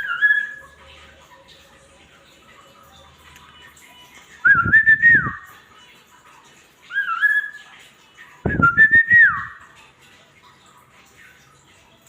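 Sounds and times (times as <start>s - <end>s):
bird whistling song: 0.0s - 0.8s, 4.4s - 5.6s, 6.8s - 7.7s, 8.4s - 9.7s.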